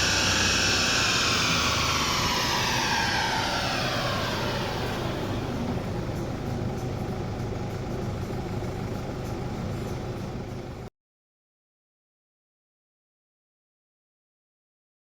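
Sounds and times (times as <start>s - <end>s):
diesel engine revs falling to idle: 0.0s - 10.9s.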